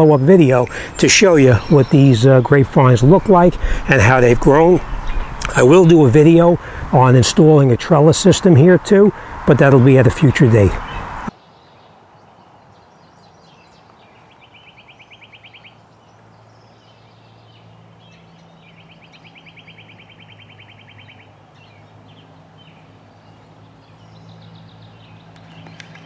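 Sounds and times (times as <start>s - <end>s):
bird trilling: 0.0s - 6.8s, 18.0s - 22.9s
low steady hum: 0.1s - 10.9s.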